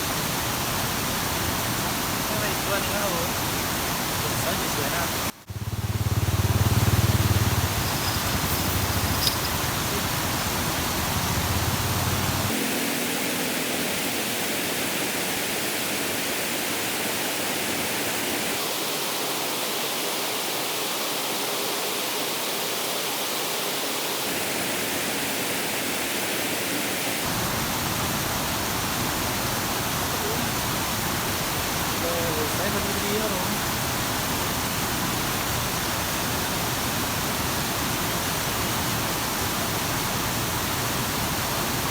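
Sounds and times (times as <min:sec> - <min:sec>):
river water flowing: 0:00.0 - 0:41.9.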